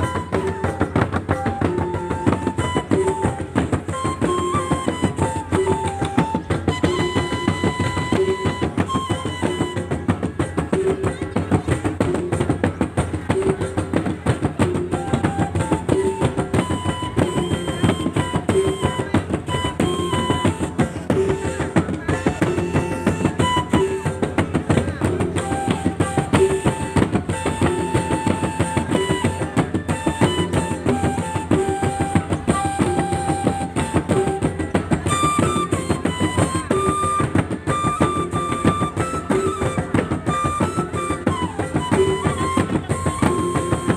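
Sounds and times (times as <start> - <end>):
fast interlocking drum strokes: 0.0 - 43.9.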